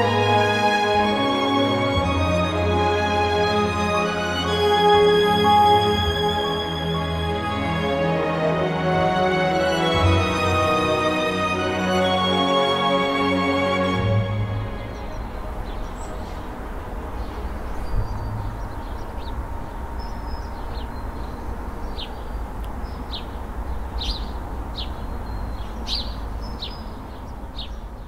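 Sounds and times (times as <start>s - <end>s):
birds chirping: 0.0s - 28.0s
low background rumble: 13.9s - 25.3s.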